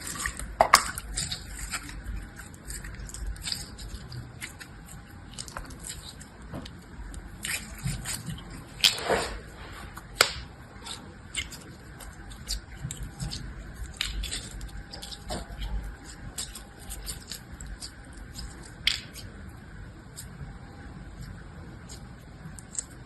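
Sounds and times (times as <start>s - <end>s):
slime clicking and crackling: 0.0s - 23.0s
slime snapping: 10.2s - 10.5s, 16.4s - 19.3s.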